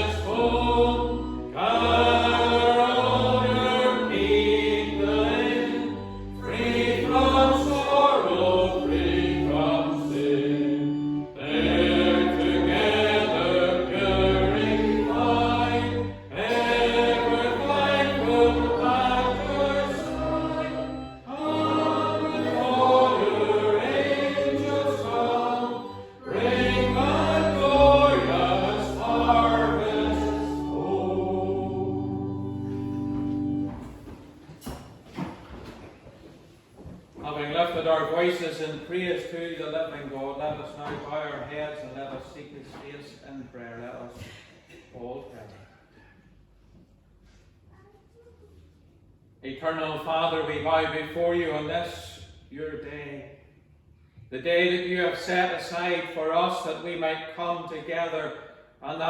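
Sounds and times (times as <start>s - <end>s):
instrumental chords: 0.0s - 34.0s
congregation singing a hymn: 0.0s - 34.2s.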